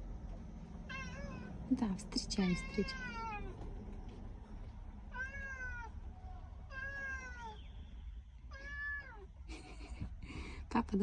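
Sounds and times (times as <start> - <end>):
cat meowing: 0.9 - 1.5, 2.4 - 3.6, 5.1 - 7.7, 8.5 - 9.2.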